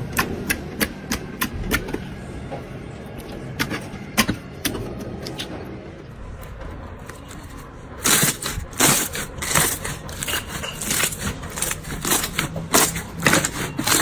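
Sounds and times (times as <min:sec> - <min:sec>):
slime squishing: 0:07.0 - 0:14.0.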